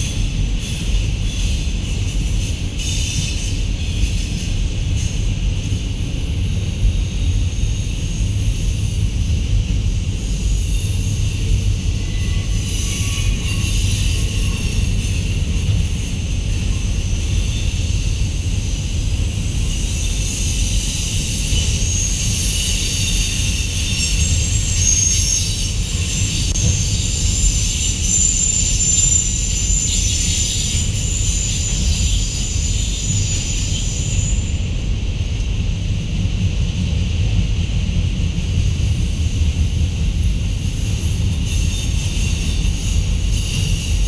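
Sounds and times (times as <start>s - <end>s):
train wheels rumbling on rails: 0.0s - 44.0s
high-pitched wheel squeal: 10.2s - 34.7s, 41.3s - 44.0s.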